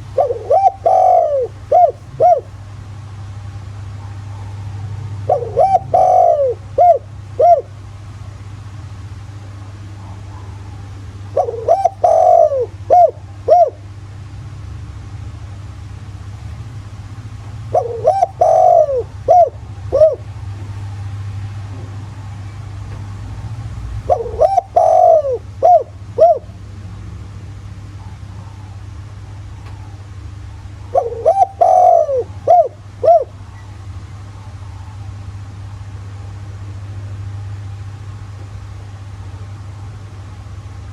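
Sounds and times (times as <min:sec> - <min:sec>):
dove cooing: 0:00.0 - 0:08.4, 0:09.7 - 0:14.0, 0:16.5 - 0:26.8, 0:27.7 - 0:35.3
steady low hum: 0:00.0 - 0:40.9.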